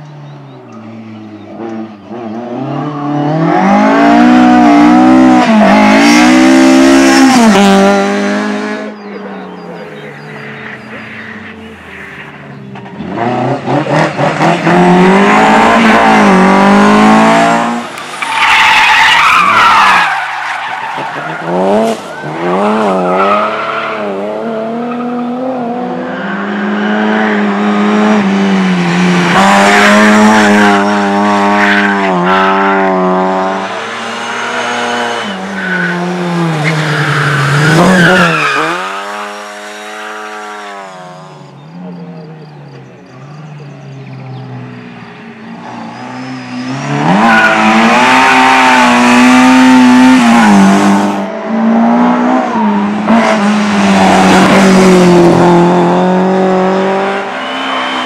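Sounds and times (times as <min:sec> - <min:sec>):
rally car engine revving: 0:01.0 - 0:58.0
tyres squealing: 0:18.2 - 0:24.1, 0:35.2 - 0:38.9.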